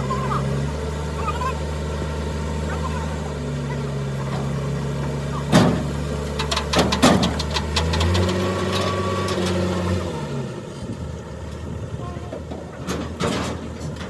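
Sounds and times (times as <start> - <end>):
engine running: 0.0 - 14.0
sharp knocks: 4.4 - 8.4.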